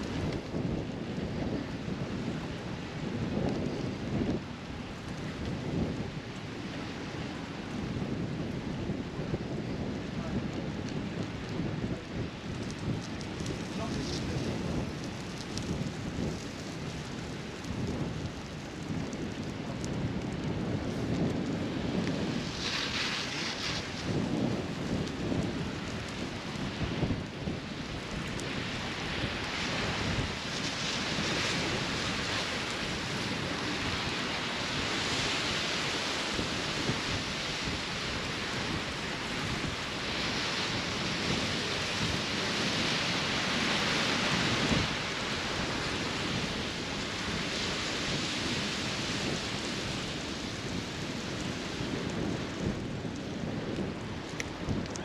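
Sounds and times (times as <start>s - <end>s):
wind rumbling on microphone: 0.0s - 55.0s
steady rushing hiss: 20.8s - 52.3s.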